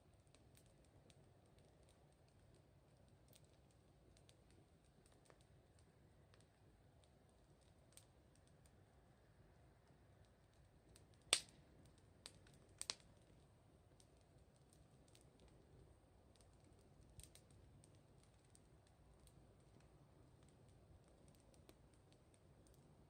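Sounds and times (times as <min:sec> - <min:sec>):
wood fire crackling: 0:00.0 - 0:23.0
sharp pops from burning wood: 0:10.8 - 0:22.8.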